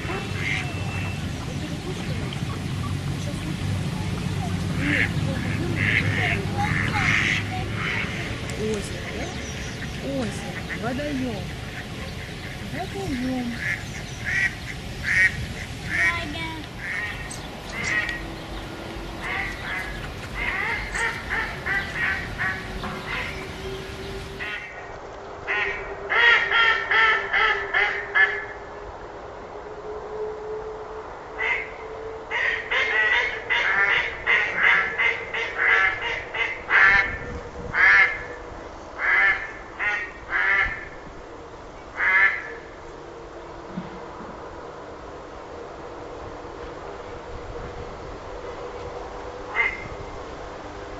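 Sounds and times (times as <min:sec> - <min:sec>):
ducks quacking: 0:00.0 - 0:24.7
duck quacking: 0:04.8 - 0:08.3, 0:19.2 - 0:23.4.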